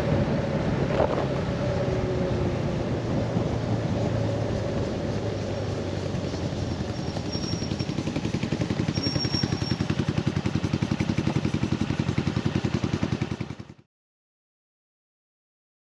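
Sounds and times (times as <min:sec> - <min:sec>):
scooter engine idling: 0:04.8 - 0:13.8.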